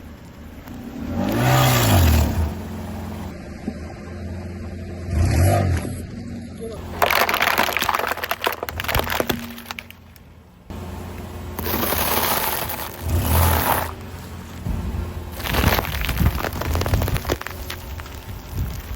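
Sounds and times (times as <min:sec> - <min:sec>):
objects cracking under car tyre: 0:06.8 - 0:10.8, 0:11.5 - 0:18.9.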